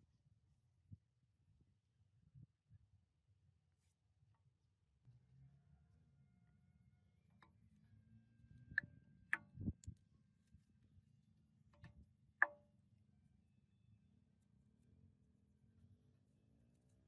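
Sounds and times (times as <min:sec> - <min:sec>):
light metallic clicks and clinks: 0:09.6 - 0:10.0.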